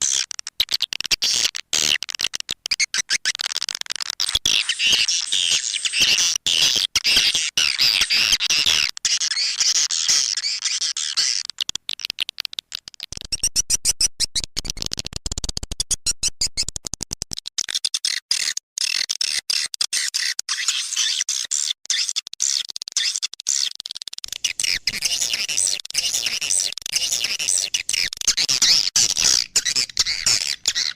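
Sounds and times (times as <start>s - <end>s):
rapid twittering bird chirps: 7.4s - 14.8s, 15.8s - 16.7s, 23.0s - 30.9s.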